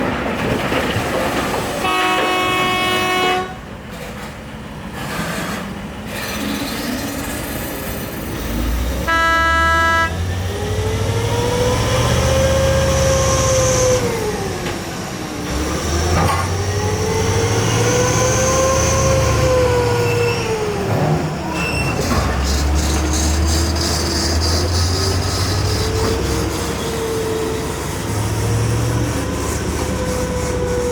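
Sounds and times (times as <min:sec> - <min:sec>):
air horn blasts: 0:01.8 - 0:03.6, 0:09.1 - 0:10.4
heavy engine whining: 0:06.0 - 0:30.9.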